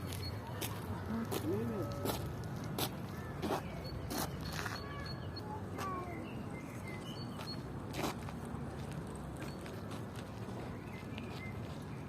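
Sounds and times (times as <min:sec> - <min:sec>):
footsteps on hard ground: 0:00.0 - 0:04.9.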